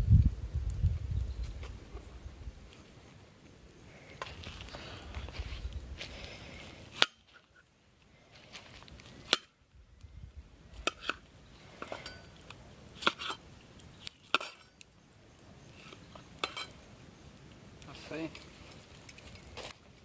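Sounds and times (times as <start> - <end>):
metal utensils clinking on cookware: 16.4 - 16.8.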